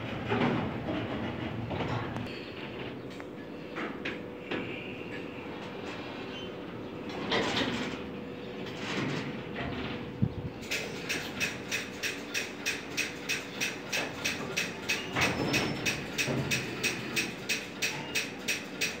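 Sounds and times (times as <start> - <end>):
freight train wheel clicks: 10.6 - 19.0.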